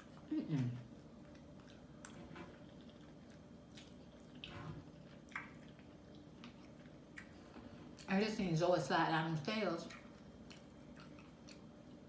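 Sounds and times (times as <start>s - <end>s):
wet chewing and mouth smacks: 0.0s - 8.1s, 9.8s - 12.0s.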